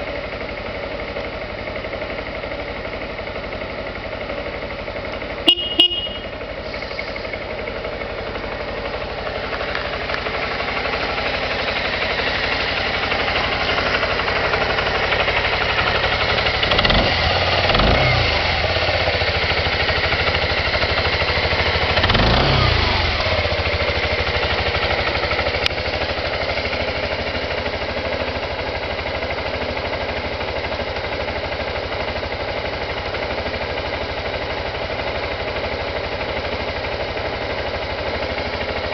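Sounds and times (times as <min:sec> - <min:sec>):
scooter engine idling and revving: 0:00.0 - 0:38.9.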